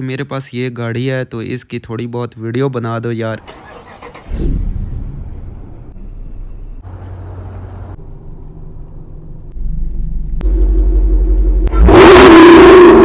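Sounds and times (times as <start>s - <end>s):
car engine idling: 5.9s - 11.8s.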